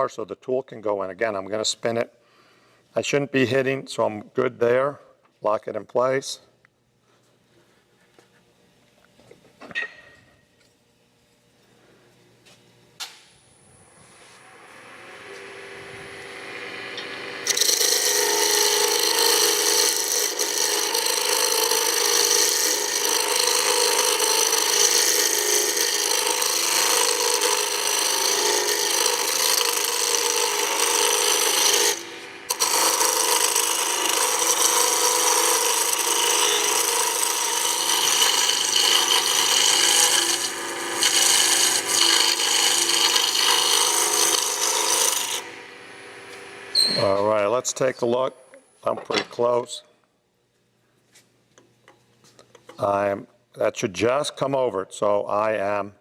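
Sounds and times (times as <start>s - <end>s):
chisel scraping wood on lathe: 16.9s - 45.6s.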